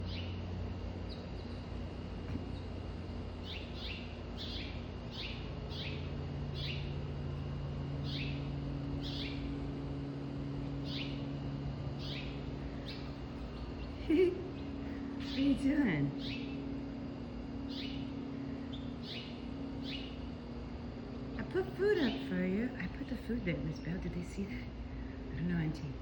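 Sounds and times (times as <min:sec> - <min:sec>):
steady low hum: 0:00.0 - 0:26.0
bird chirping: 0:01.1 - 0:01.7, 0:03.4 - 0:07.0, 0:08.0 - 0:09.5, 0:10.8 - 0:11.3, 0:12.0 - 0:16.7, 0:17.7 - 0:20.3.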